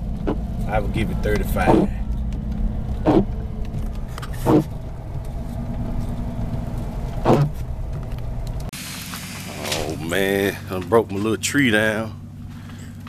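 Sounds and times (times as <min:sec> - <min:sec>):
car engine and road rumble: 0:00.0 - 0:13.0
voice-like sounds: 0:09.5 - 0:10.7.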